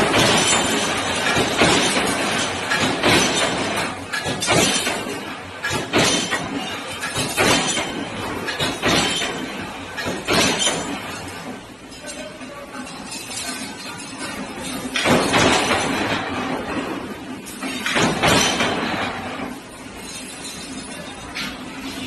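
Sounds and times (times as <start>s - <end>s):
sharp metallic clanks: 0.0s - 16.6s
steady mechanical noise: 0.0s - 22.0s.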